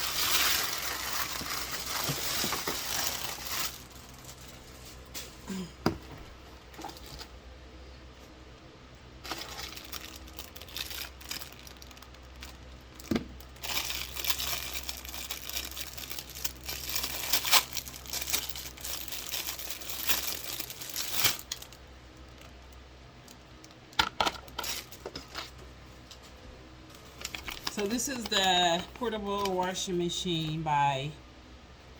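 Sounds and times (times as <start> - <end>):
plastic packaging crinkling: 0.0 - 5.5, 9.2 - 23.8, 24.4 - 25.6, 26.9 - 30.5.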